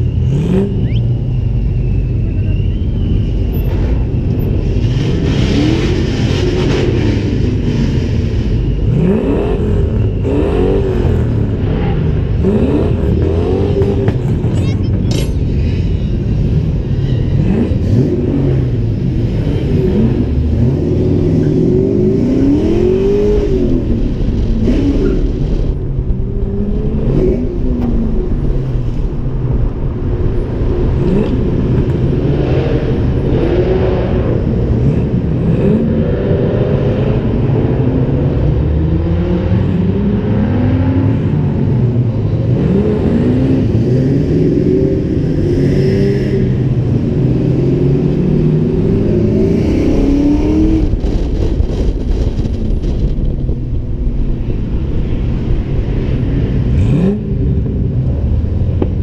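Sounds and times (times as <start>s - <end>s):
car engine and exhaust revving: 0.0s - 59.0s.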